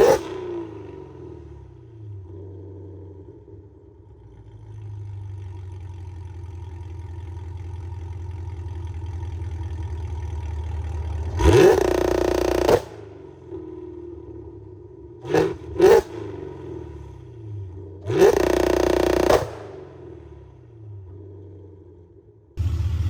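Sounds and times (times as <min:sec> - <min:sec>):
engine revving sharply: 0:00.0 - 0:02.8, 0:11.3 - 0:14.5, 0:15.2 - 0:21.5
car engine exhaust drone: 0:00.0 - 0:23.0.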